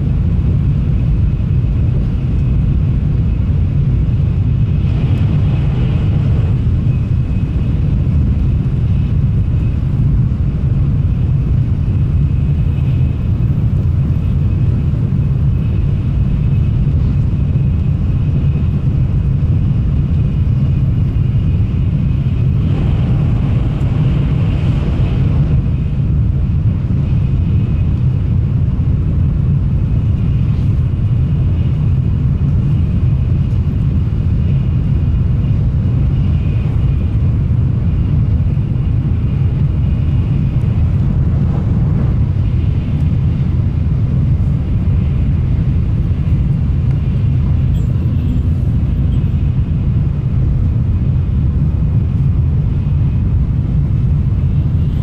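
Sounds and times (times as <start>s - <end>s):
train cabin low rumble: 0.0s - 55.0s
faint high whine: 29.9s - 55.0s.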